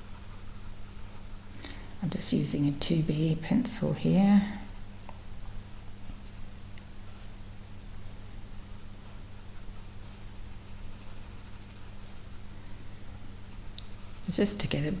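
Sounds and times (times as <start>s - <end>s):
steady low hum: 0.0s - 15.0s
pencil scratching on paper: 9.1s - 12.4s, 13.4s - 14.3s.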